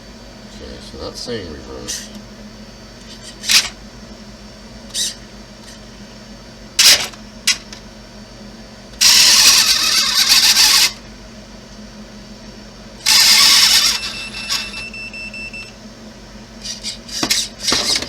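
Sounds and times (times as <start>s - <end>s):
electric motors whirring: 4.9s - 5.8s, 9.0s - 11.0s, 13.0s - 14.9s, 16.6s - 18.0s.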